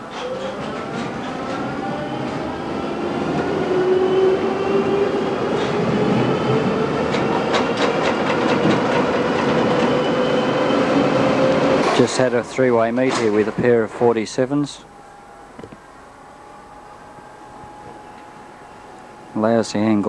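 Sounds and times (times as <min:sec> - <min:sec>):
tram motor whine: 0:00.0 - 0:20.0
wheels clicking over rails: 0:05.5 - 0:10.2.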